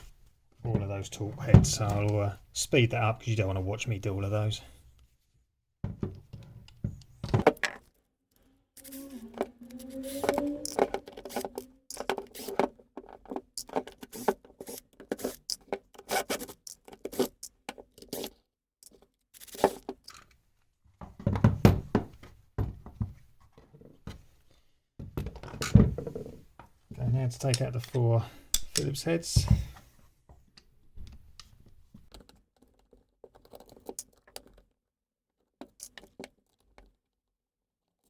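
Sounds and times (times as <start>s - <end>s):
short wavering tone: 8.8s - 10.9s
screwdriver undoing screws: 8.8s - 20.2s
clicks knocks and scrapes: 8.8s - 20.3s, 31.0s - 34.7s, 35.4s - 37.0s.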